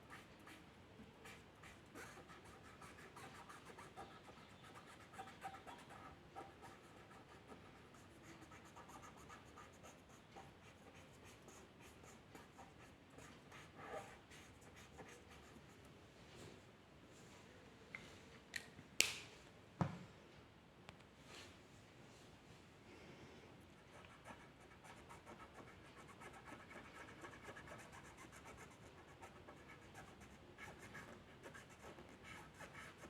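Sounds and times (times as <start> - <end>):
drawing tool scratching on paper: 24.2 - 33.0.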